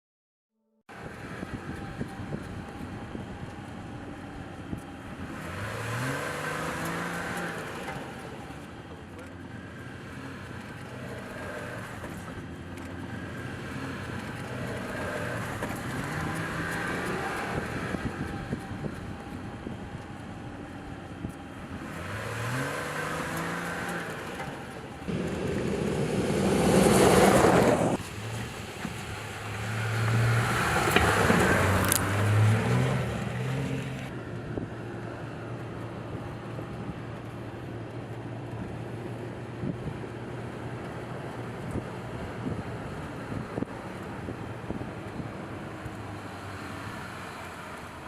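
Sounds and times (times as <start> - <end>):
pickup engine revving: 4.7 - 34.2
loud rushing noise: 25.1 - 28.0.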